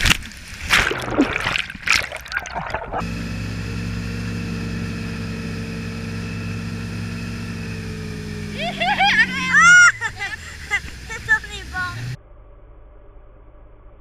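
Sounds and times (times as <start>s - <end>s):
water splashing and rushing: 0.0s - 3.5s
motorboat engine droning: 1.0s - 12.2s.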